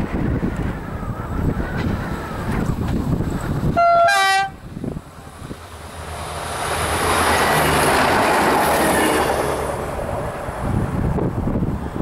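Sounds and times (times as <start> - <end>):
railcar passing on rails: 0.0 - 12.0
two-tone train horn: 3.8 - 4.6.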